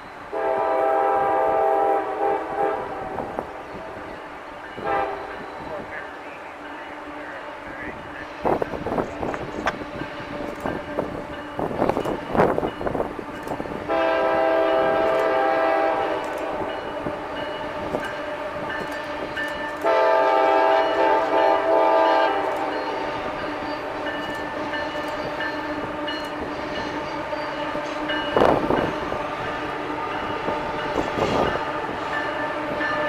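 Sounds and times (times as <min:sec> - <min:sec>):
locomotive air horn chords: 0:00.3 - 0:03.7, 0:04.8 - 0:08.0, 0:13.8 - 0:24.0
train wheels clattering on rails: 0:07.8 - 0:33.0.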